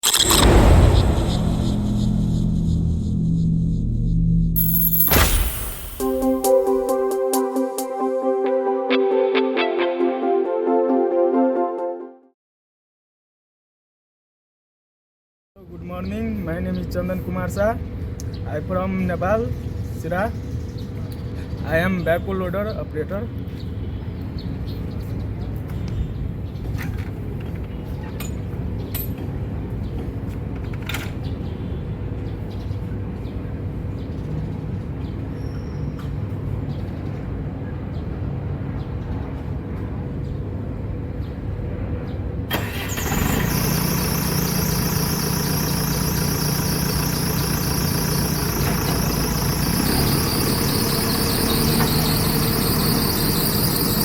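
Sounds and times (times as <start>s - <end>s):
diesel engine running: 0.0s - 5.0s, 42.5s - 54.0s.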